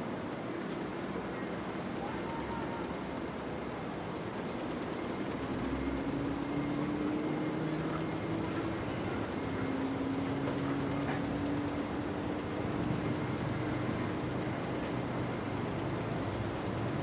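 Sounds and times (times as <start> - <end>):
engine drone rising in pitch: 5.7 - 9.0.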